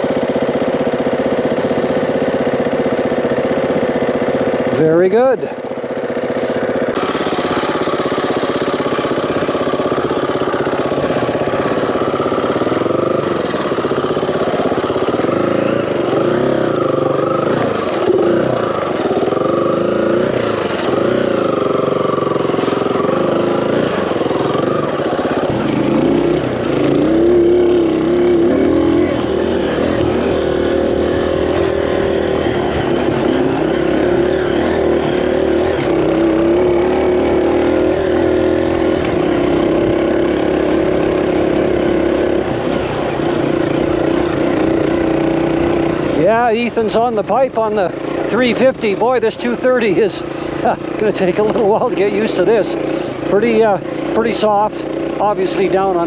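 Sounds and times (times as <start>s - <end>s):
dirt bike engine running: 0.0s - 56.0s.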